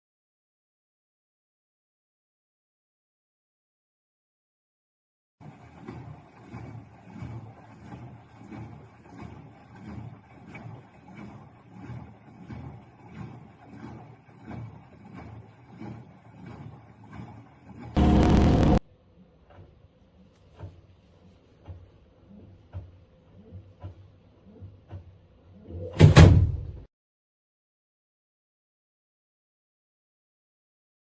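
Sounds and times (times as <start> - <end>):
loud burst: 18.0 - 18.8.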